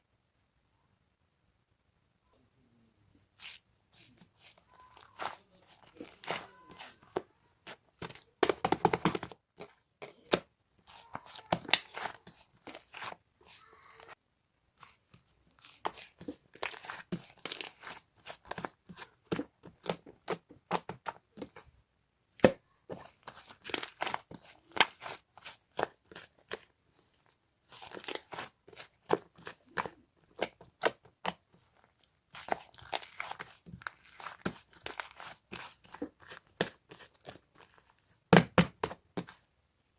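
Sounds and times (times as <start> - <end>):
crinkling and tearing: 23.0 - 38.1.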